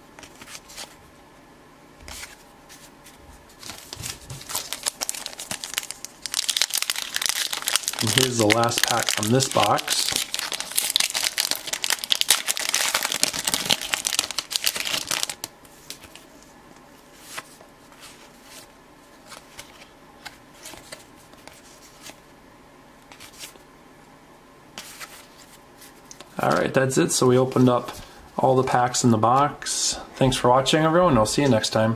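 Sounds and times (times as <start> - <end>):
wrapper crinkling and tearing: 3.6 - 15.5.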